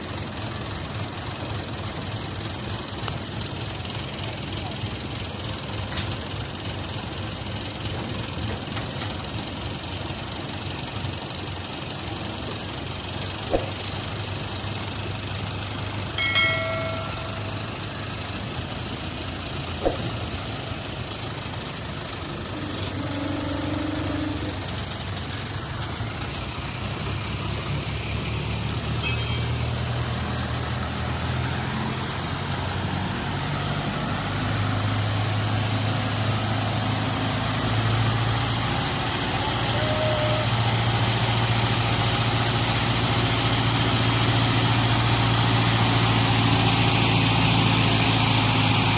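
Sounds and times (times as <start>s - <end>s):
heavy vehicle engine running: 0.0s - 48.9s
sharp knocks: 13.5s - 13.8s, 19.8s - 20.2s
metal clang ringing: 16.2s - 17.7s, 29.0s - 29.7s.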